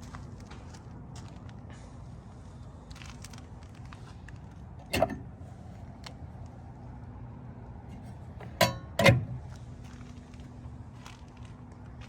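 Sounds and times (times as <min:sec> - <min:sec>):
sharp metallic clunks: 0:04.9 - 0:05.4, 0:08.4 - 0:09.5.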